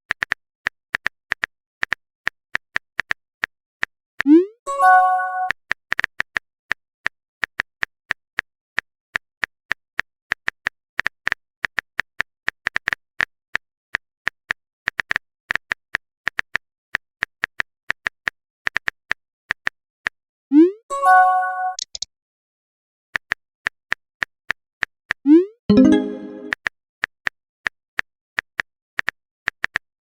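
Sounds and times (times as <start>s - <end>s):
message chime: 20.9s - 21.8s, 25.7s - 26.5s
phone keyboard typing clicks: 21.7s - 22.0s.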